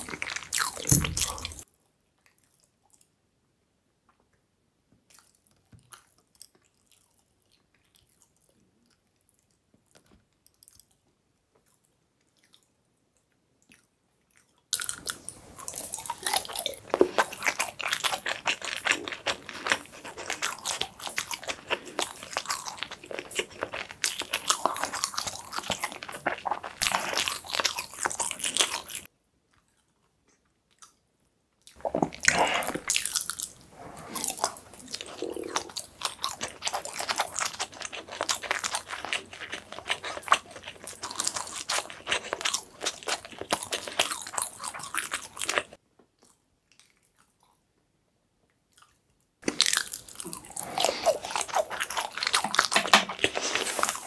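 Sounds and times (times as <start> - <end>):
close-miked chewing: 0.0 - 3.1, 13.6 - 31.0, 31.6 - 47.7, 48.7 - 54.0.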